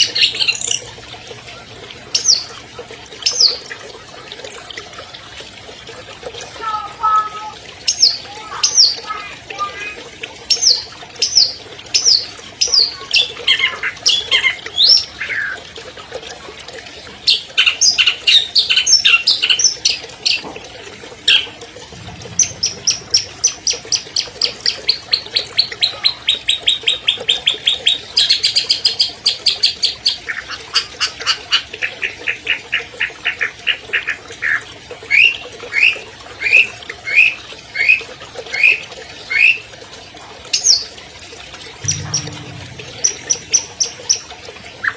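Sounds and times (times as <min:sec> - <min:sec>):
bird singing chirps and trills: 0:41.8 - 0:44.0.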